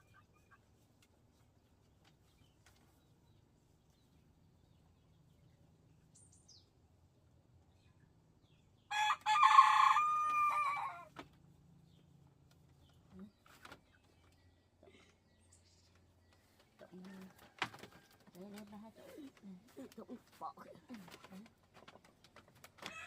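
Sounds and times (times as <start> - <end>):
rooster crowing: 8.9 - 11.1.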